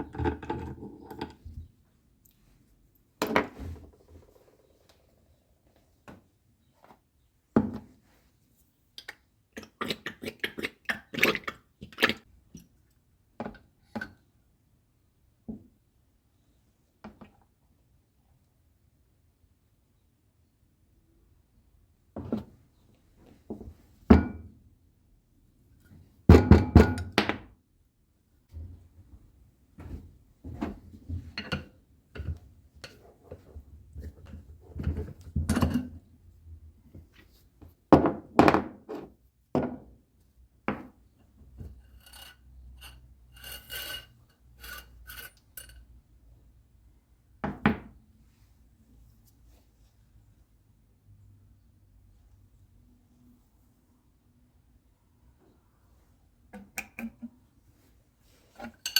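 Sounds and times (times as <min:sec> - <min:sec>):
hand tools knocking and scraping: 0:41.6 - 0:45.8.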